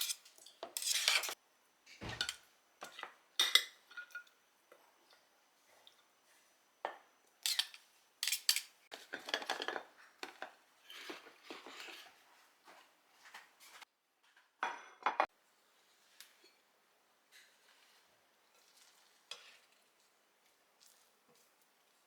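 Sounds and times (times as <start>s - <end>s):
dishes scraping: 0.0s - 1.4s, 2.0s - 4.3s, 7.4s - 12.3s
dishes and cutlery clinking: 2.0s - 4.3s, 6.9s - 12.2s, 14.6s - 15.3s.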